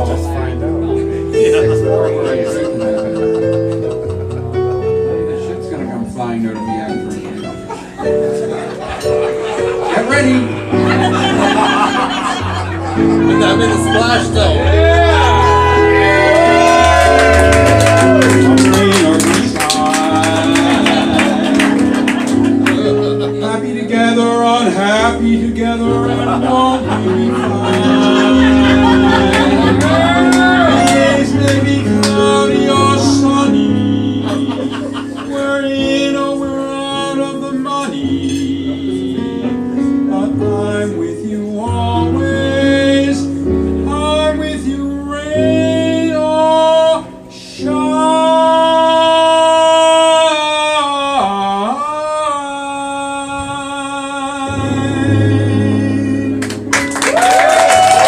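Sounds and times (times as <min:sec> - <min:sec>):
piano accompaniment: 0:00.0 - 0:58.0
person singing with vibrato: 0:23.0 - 0:56.7.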